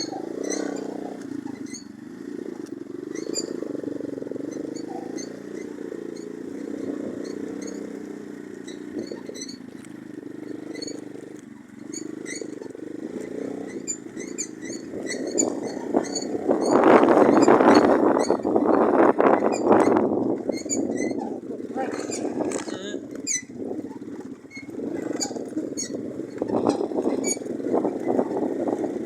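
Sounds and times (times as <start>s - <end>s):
moped engine running: 0.0s - 29.0s.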